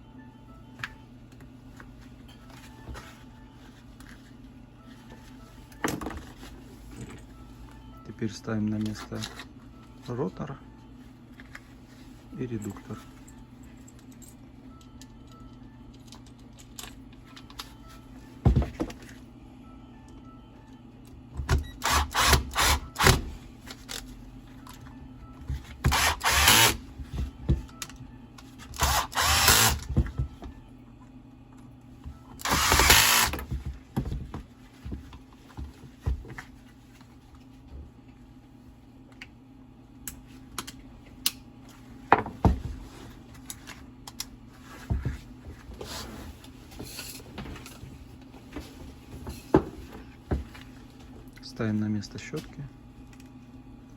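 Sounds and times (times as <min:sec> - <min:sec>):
power screwdriver whirring: 0:21.8 - 0:23.2, 0:25.9 - 0:26.8, 0:28.8 - 0:29.9, 0:32.4 - 0:33.4.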